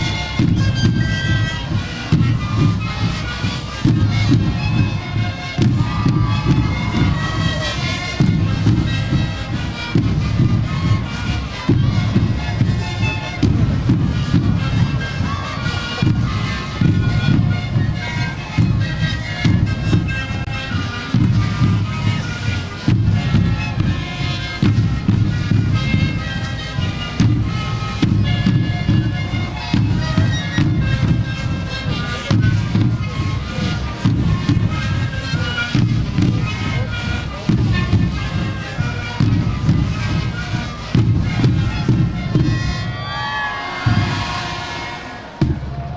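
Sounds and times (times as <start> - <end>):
panpipes playing a chord: 0.0 - 45.6
bass drum beats: 3.8 - 20.5, 39.2 - 45.9.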